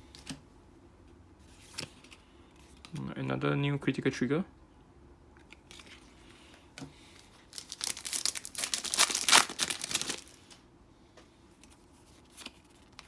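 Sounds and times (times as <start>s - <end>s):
foil wrapper crinkling and tearing: 7.3s - 10.6s.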